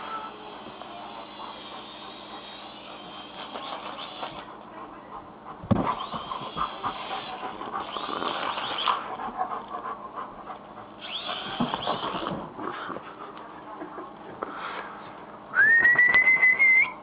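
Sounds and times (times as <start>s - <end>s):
dog whining: 0.0s - 4.5s, 5.9s - 9.6s, 11.0s - 12.9s, 15.6s - 17.0s
dog panting: 0.0s - 15.3s
thump: 5.7s - 6.0s.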